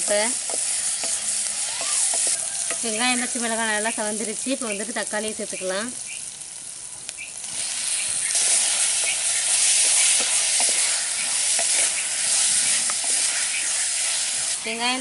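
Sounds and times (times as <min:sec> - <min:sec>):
vegetables sizzling in oil: 0:00.0 - 0:15.0
wooden spatula scraping and stirring: 0:07.6 - 0:14.8.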